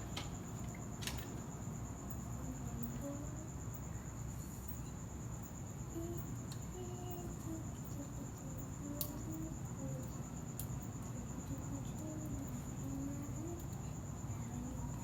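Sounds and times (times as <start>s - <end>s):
cricket chirping: 0.0s - 15.0s
faint clicks: 9.0s - 9.3s.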